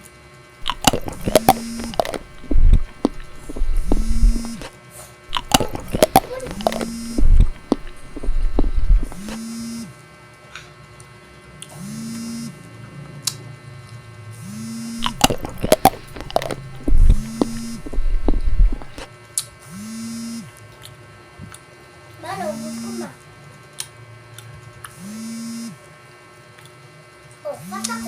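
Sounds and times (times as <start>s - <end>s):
sharp clicks and crackles: 0.6s - 4.7s, 5.3s - 9.4s, 15.0s - 19.1s.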